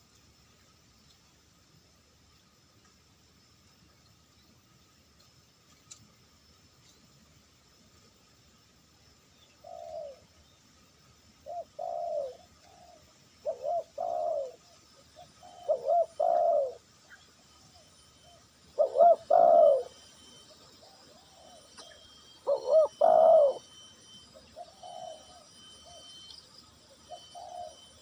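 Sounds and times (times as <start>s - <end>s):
dove cooing: 9.5s - 10.2s, 11.4s - 26.2s, 27.0s - 28.0s.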